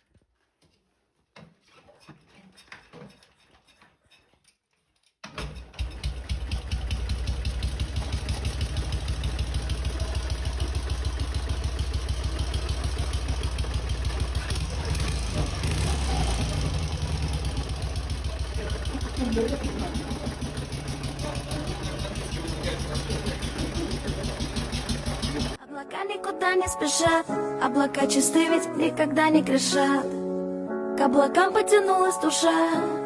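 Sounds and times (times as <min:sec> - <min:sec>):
motorcycle engine starting and idling: 0:05.2 - 0:25.6.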